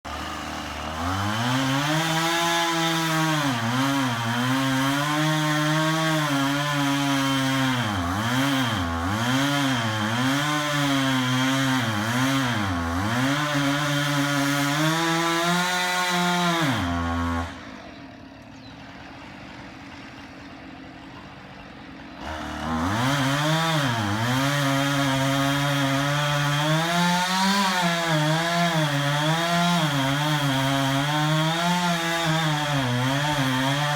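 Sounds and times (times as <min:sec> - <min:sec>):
chainsaw cutting into tree: 0:00.1 - 0:33.9.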